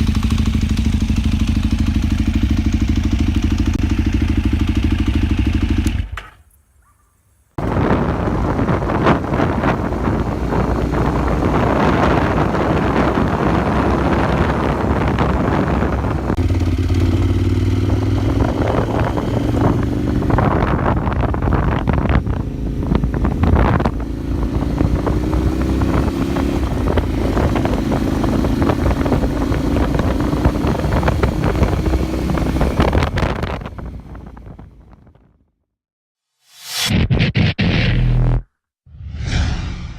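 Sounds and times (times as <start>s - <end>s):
motorcycle engine running: 0.0s - 6.4s, 7.6s - 35.1s
wind noise on microphone: 7.6s - 35.1s.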